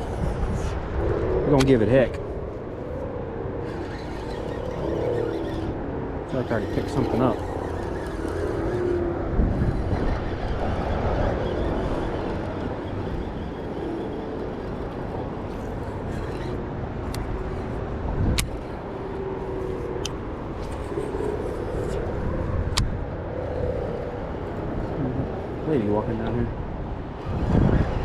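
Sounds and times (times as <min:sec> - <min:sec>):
faint wavering hum: 0:00.0 - 0:28.0.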